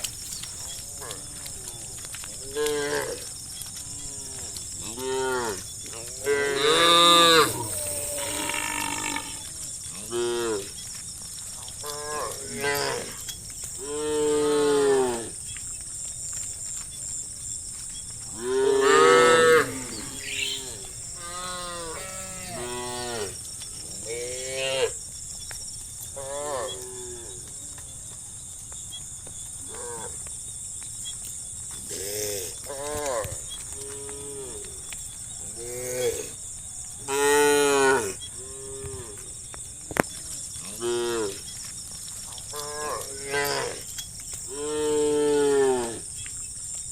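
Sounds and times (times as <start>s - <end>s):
cows mooing: 18.4s - 23.4s.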